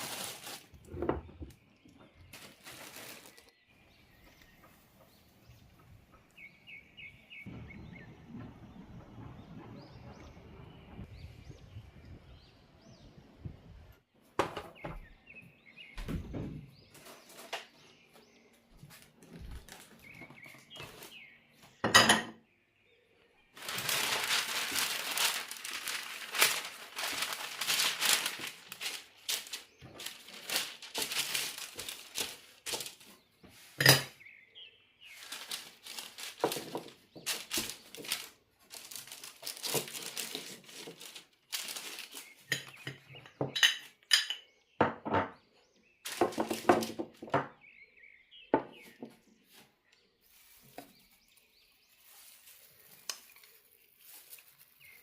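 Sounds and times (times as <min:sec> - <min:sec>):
dishes and cutlery clinking: 0:21.8 - 0:22.4, 0:42.4 - 0:45.4.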